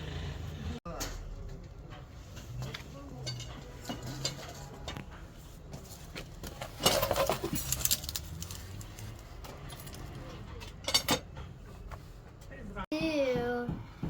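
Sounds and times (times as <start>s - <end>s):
small metal objects clinking: 6.8s - 10.2s.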